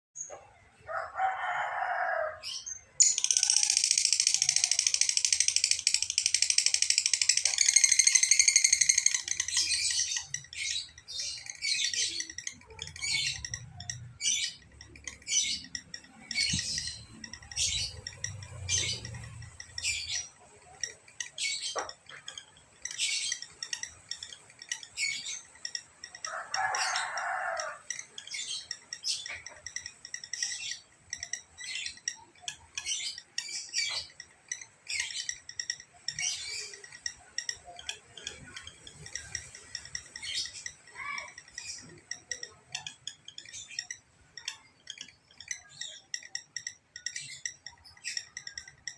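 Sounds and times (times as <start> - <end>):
lovebird chirping shrilly: 3.0 - 9.4.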